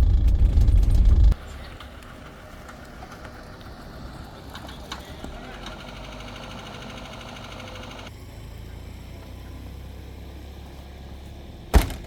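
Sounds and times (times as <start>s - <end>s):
fine rattle: 0.0s - 5.2s
vehicle engine idling: 0.0s - 12.0s.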